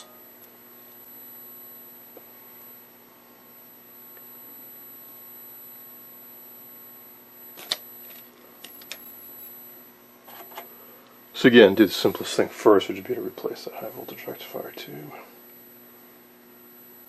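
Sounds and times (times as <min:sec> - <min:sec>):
high-pitched whine: 0:00.0 - 0:00.5
tv steady hum: 0:00.0 - 0:17.0
sharp click: 0:07.6 - 0:07.8.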